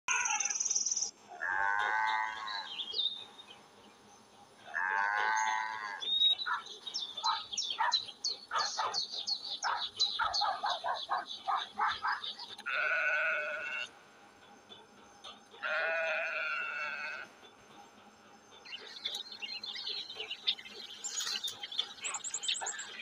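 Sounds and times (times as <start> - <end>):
dog barking: 6.5 - 12.3.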